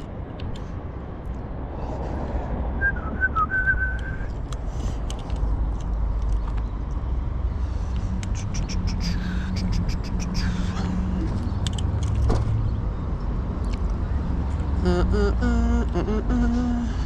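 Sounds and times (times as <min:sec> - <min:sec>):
low outdoor rumble: 0:00.0 - 0:17.0
whistled phrase: 0:02.8 - 0:04.3.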